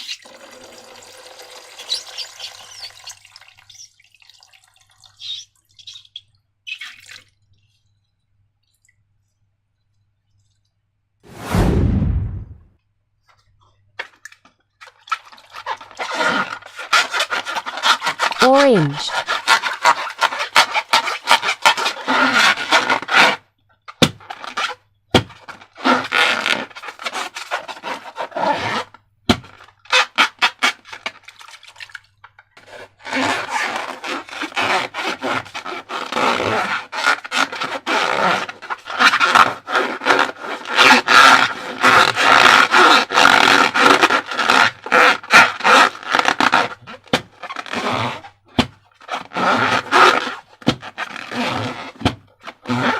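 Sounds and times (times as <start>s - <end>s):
rubber balloons rubbing and squeaking: 1.8s - 3.9s, 15.3s - 31.1s, 32.6s - 52.9s.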